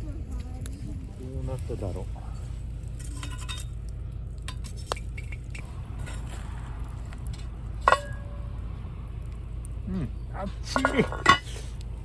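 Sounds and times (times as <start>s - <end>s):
steady low rumble: 0.0s - 12.0s
metal pot and lid clinking: 3.0s - 3.7s, 7.8s - 8.5s, 10.6s - 11.6s
ringing metal clank: 7.8s - 8.5s, 10.6s - 11.6s.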